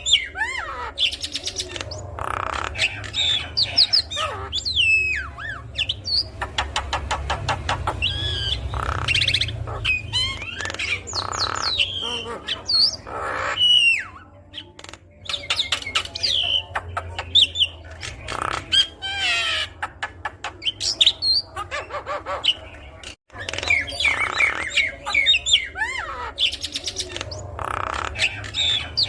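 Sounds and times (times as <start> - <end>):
myna whistling and squawking: 0.0 - 7.1.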